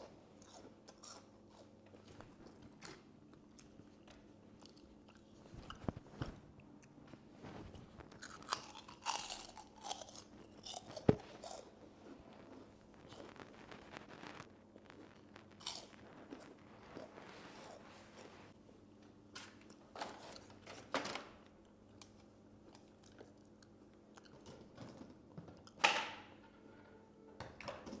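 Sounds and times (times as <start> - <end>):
person chewing crunchy food: 0.3 - 18.6.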